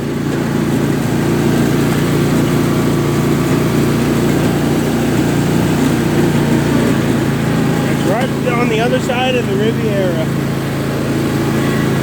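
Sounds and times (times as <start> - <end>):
riding lawn mower engine: 0.0 - 12.0.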